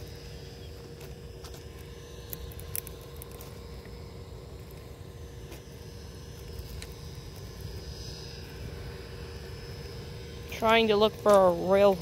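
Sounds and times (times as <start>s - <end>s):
faint hum: 0.0s - 12.0s
steady low rumble: 0.0s - 12.0s.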